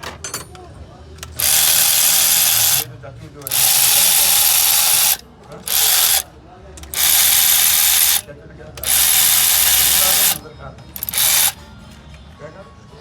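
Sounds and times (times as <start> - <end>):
pneumatic air ratchet bursts: 1.2 - 6.2, 6.8 - 8.2, 8.8 - 10.4, 11.0 - 11.6.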